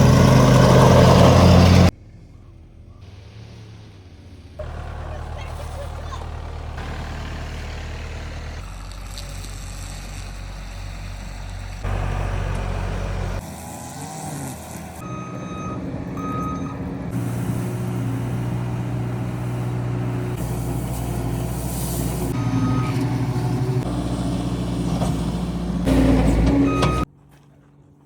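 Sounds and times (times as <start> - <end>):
heavy machinery engines running: 0.0 - 27.1
backup alarm beeping: 15.0 - 16.8, 22.4 - 23.6, 26.0 - 27.1.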